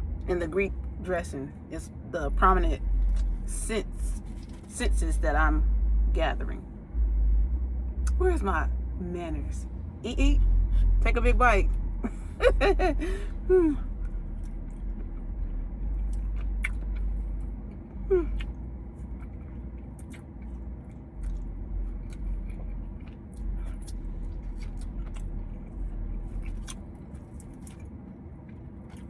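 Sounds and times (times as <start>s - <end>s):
low rumble: 0.0s - 29.0s
person humming: 12.5s - 13.9s, 18.1s - 18.4s
person chewing salad: 13.1s - 29.0s.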